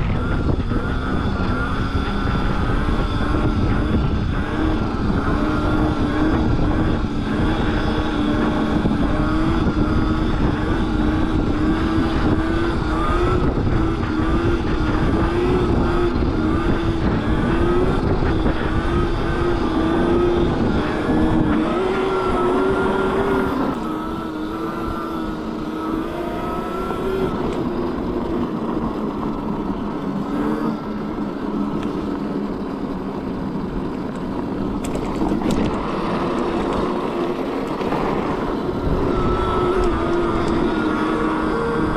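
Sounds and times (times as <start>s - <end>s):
electric motor whining: 0.0s - 41.9s
wind rumble on microphone: 0.0s - 41.9s.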